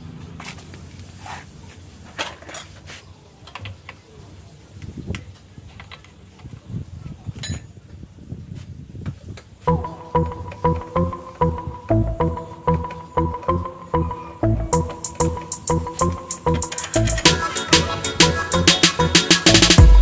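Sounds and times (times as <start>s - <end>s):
music with steady notes: 9.7s - 20.0s.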